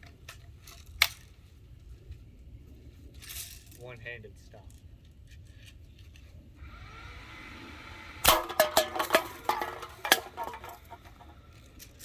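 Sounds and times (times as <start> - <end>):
metal cans clattering: 8.3 - 11.4.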